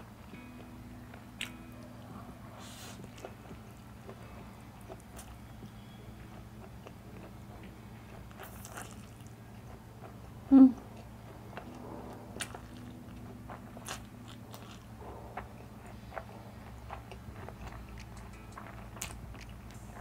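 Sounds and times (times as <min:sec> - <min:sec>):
chewing with wet mouth clicks: 0:04.8 - 0:10.2, 0:15.9 - 0:20.0.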